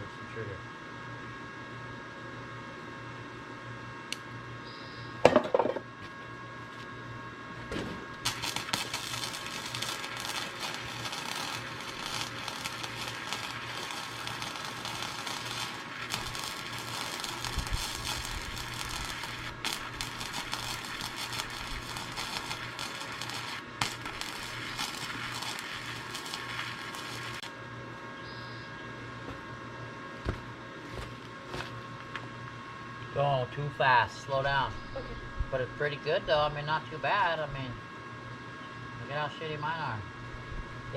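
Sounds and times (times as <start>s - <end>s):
welder arc crackling: 8.1s - 27.6s, 30.2s - 32.2s.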